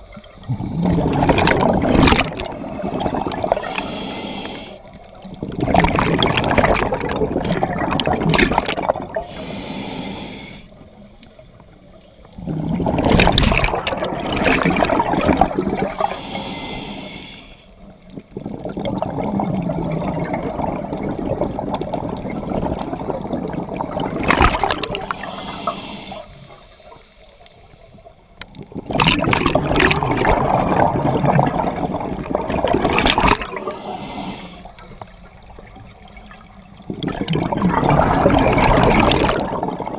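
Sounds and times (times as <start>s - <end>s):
diver breathing through regulator: 0.4s - 5.0s, 9.1s - 11.6s, 15.8s - 17.8s, 24.7s - 28.0s, 33.4s - 35.1s.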